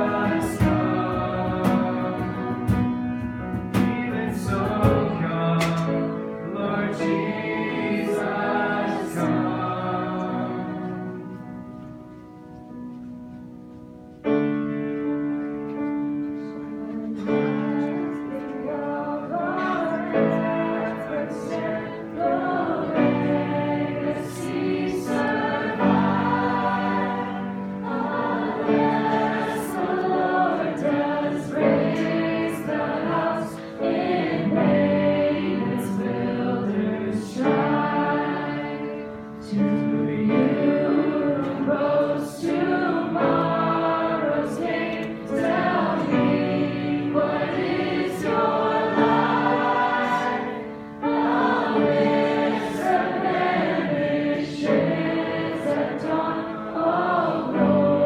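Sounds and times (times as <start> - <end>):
voices singing worship song: 0.0 - 12.7, 16.4 - 58.0.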